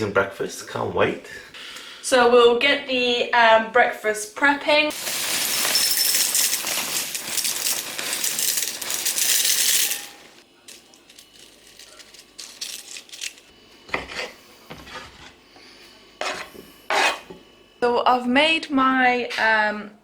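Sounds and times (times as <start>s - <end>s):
cornflakes poured into a bowl: 4.9s - 10.2s.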